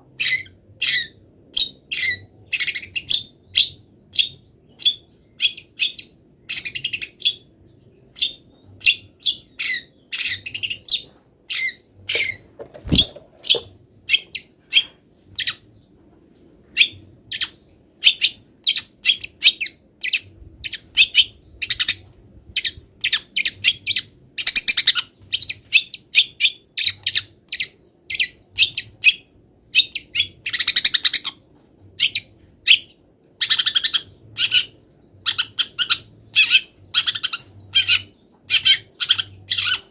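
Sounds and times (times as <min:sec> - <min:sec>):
scratchy bird chatters: 0:12.1 - 0:14.2.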